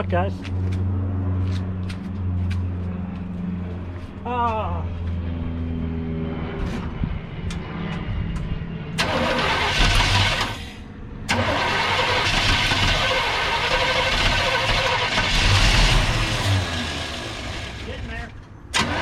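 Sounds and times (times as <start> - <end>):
car engine starting and running: 6.6 - 19.0.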